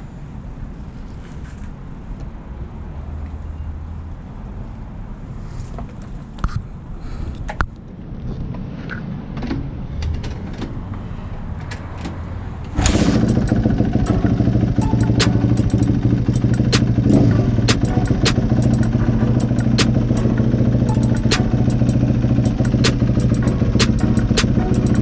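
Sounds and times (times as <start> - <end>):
dirt bike engine starting and idling: 12.7 - 25.0.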